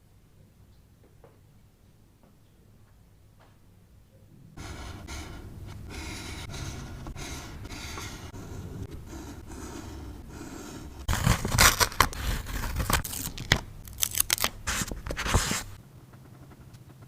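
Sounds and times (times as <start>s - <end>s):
scissors snipping paper: 11.1s - 15.8s.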